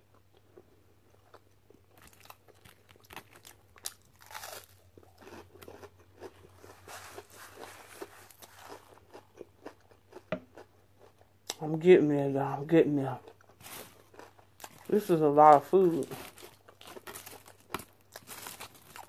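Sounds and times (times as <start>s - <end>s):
chewing crunchy fried food: 0.0s - 11.9s, 12.6s - 19.0s
faint low hum: 0.0s - 19.0s.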